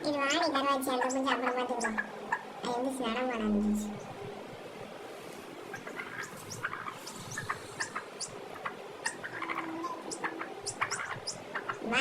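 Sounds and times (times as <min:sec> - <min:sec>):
chicks peeping: 0:00.1 - 0:02.8, 0:05.4 - 0:12.0
lower chicken calls: 0:05.5 - 0:12.0.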